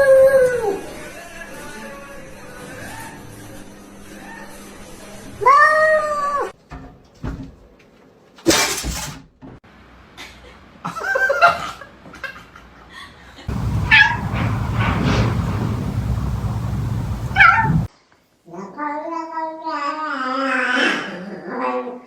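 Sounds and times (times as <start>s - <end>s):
short sharp noisy burst: 13.5s - 17.9s
cat meowing: 17.2s - 17.9s.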